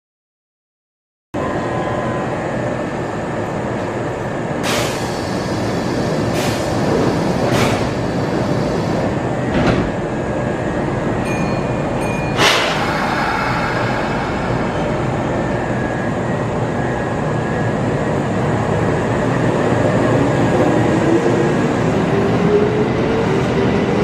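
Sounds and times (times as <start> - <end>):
train equipment running: 4.6 - 18.7.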